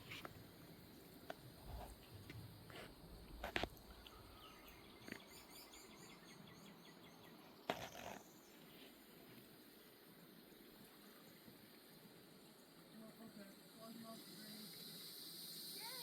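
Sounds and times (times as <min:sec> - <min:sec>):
bird chirping: 0:03.9 - 0:08.6.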